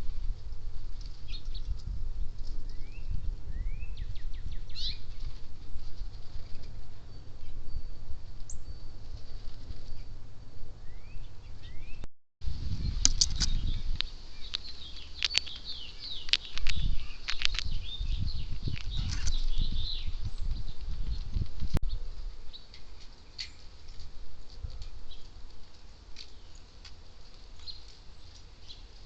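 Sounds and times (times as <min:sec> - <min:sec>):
wind rumble on microphone: 0:00.0 - 0:29.0
birds chirping and calling: 0:01.0 - 0:10.2, 0:10.8 - 0:12.1, 0:12.7 - 0:29.0
sharp clicking bird calls: 0:13.0 - 0:20.1, 0:22.5 - 0:29.0.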